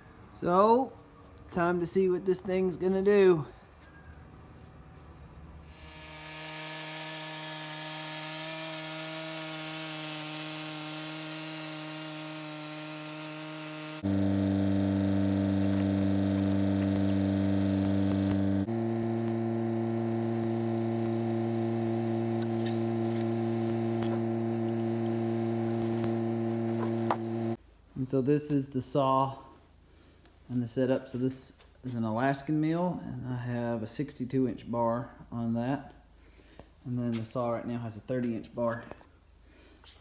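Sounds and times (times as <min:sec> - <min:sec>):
chainsaw cutting log: 0:05.7 - 0:27.6.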